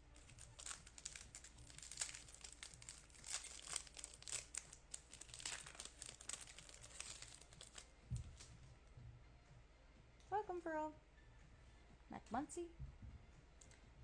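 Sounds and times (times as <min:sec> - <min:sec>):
foil wrapper crinkling: 0:00.1 - 0:08.5.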